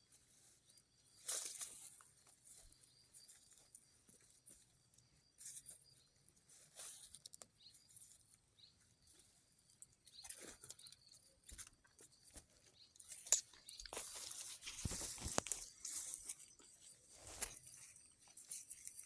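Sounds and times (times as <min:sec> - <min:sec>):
rustling and scraping: 0:11.5 - 0:19.0.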